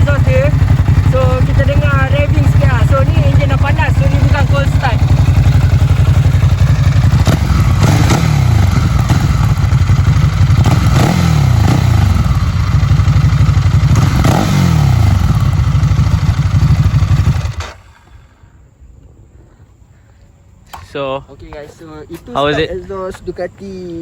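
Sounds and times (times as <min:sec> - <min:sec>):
motorcycle throttle blips: 0:00.0 - 0:18.5
motorcycle engine idling: 0:00.0 - 0:19.4.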